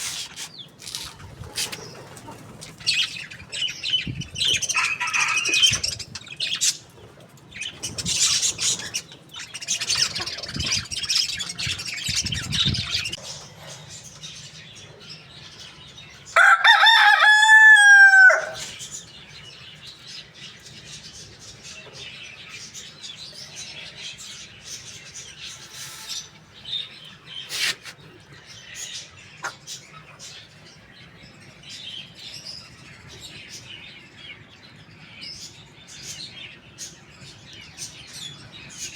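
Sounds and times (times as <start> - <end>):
rooster crowing: 16.4 - 18.7.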